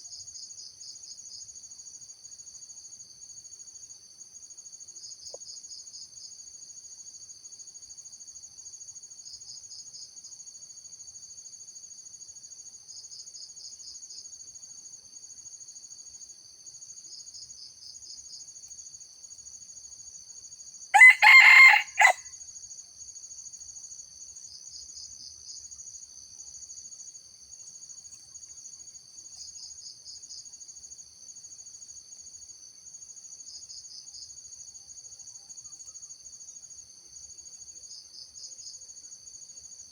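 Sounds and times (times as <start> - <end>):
insects trilling: 19.9 - 22.3
rooster crowing: 20.9 - 22.3.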